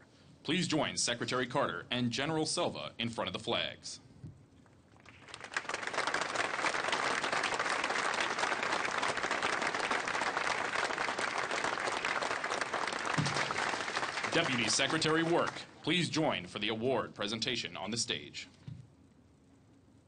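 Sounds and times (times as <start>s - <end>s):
audience applauding: 5.0s - 15.7s.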